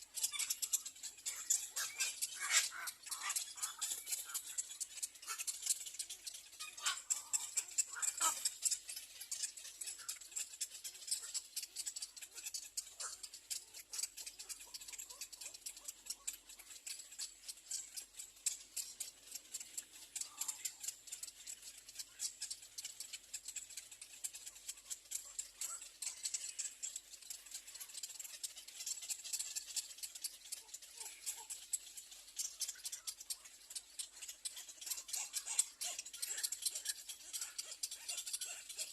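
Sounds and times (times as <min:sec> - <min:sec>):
nestlings clicking chatter: 0:00.0 - 0:38.9
faint bird calls: 0:00.2 - 0:13.3.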